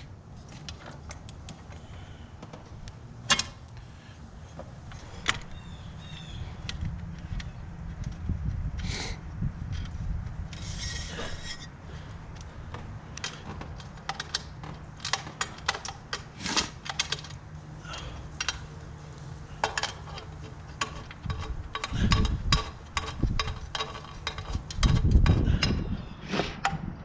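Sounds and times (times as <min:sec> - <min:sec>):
clicks and taps of intake parts: 0:12.3 - 0:25.8.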